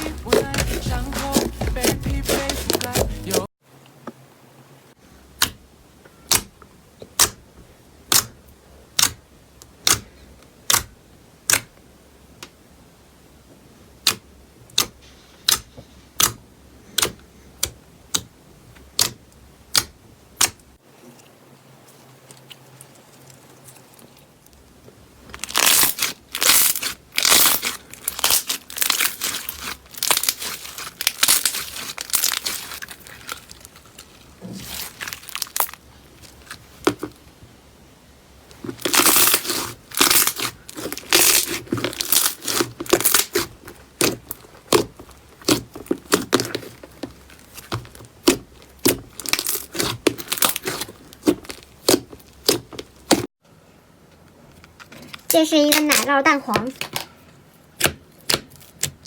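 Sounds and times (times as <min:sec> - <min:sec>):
crackling popping slime: 0:08.1 - 0:09.2, 0:22.2 - 0:37.3, 0:38.5 - 0:53.3, 0:57.8 - 0:59.0.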